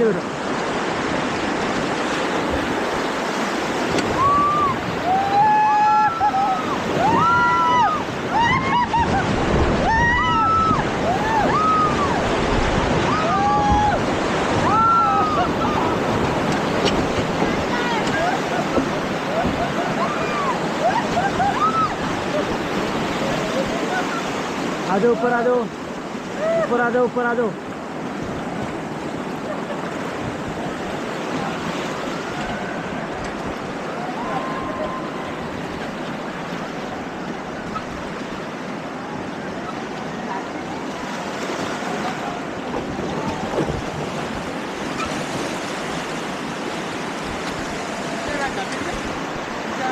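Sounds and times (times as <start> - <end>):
river rapids rushing and splashing: 0.0 - 49.9
people screaming and yelling: 4.0 - 16.2, 17.4 - 25.1, 32.2 - 35.8.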